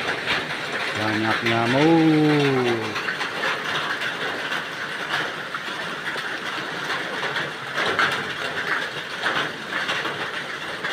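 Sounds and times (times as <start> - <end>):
rain falling: 0.0 - 10.9.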